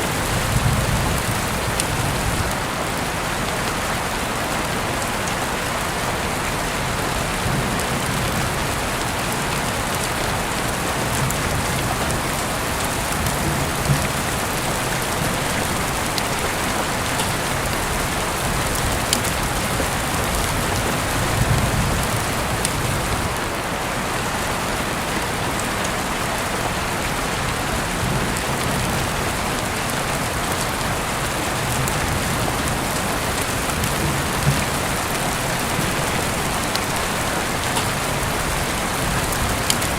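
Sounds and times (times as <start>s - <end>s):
sharp rain drop ticks: 0.0s - 2.6s, 9.0s - 23.2s, 28.0s - 39.9s
heavy rain hissing: 0.0s - 39.9s.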